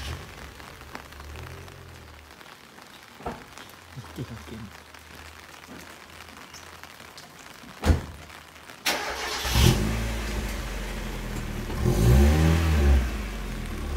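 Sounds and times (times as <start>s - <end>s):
car engine starting and idling: 8.8s - 13.9s.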